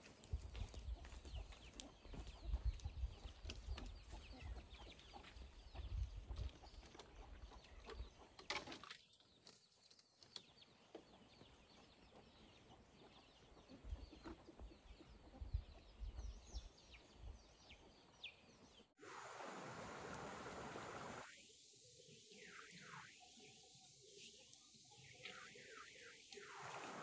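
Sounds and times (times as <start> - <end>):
steady hiss: 19.0 - 27.0.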